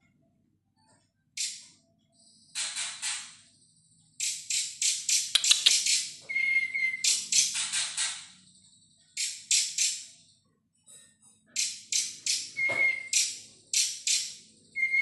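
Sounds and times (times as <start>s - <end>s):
songbird rattling notes: 4.2s - 6.2s
bird whistle: 5.4s - 7.2s, 12.3s - 13.3s, 14.8s - 15.0s.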